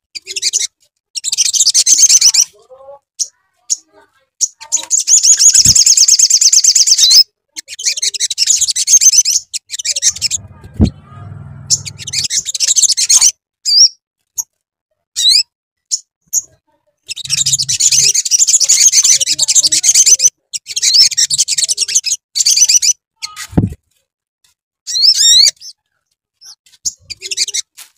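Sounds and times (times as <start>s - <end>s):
upward-sliding bird calls: 9.0s - 13.2s, 17.1s - 18.2s
bird chattering trills: 11.6s - 13.2s, 17.1s - 20.3s.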